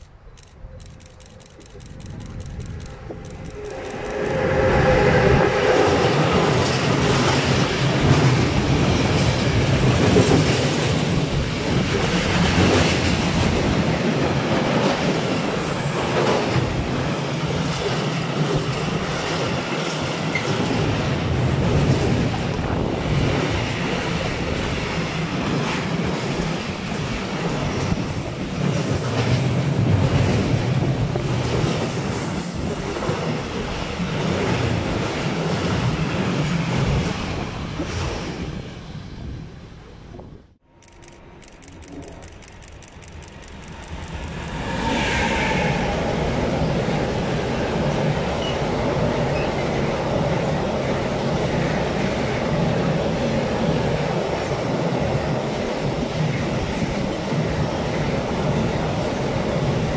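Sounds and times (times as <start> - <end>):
freight train rolling rumble: 1.9 - 40.6.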